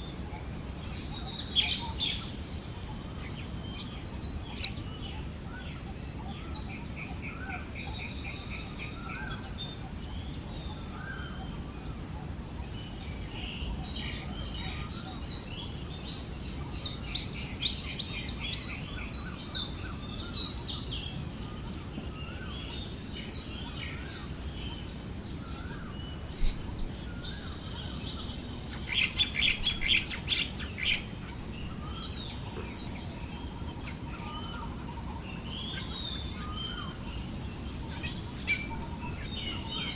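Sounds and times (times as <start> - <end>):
high insect drone: 0.0 - 39.9
birds chirping: 25.5 - 39.9.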